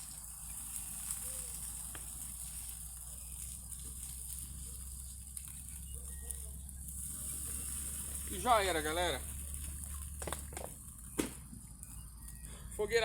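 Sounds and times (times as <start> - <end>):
campfire crackling and popping: 0.0 - 13.0
steady high hiss: 6.8 - 10.3.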